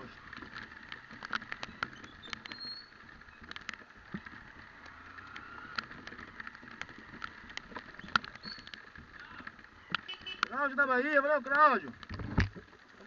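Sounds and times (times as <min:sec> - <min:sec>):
raindrops tapping microphone: 0:00.0 - 0:13.0
hiss of riding on wet road: 0:03.8 - 0:09.3.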